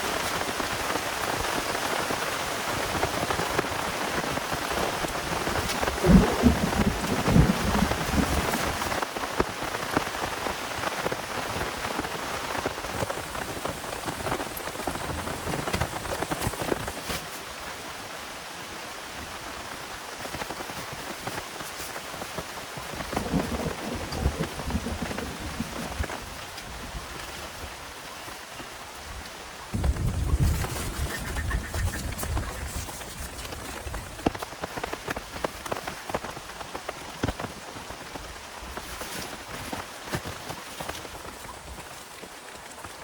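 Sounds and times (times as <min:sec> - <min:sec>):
heavy rain falling: 0:00.0 - 0:38.8
raindrops striking close by: 0:00.0 - 0:43.0
thunder rumbles: 0:05.4 - 0:09.0, 0:23.0 - 0:26.9, 0:29.7 - 0:34.4.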